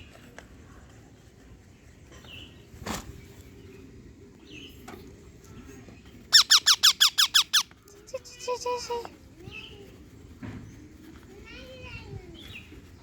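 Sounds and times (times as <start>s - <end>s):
parrot chirps and squawks: 6.3s - 7.7s.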